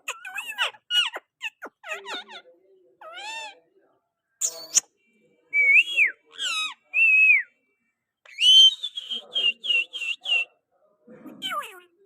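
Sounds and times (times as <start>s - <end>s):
parakeet squawk: 0.0s - 3.6s, 6.3s - 6.8s.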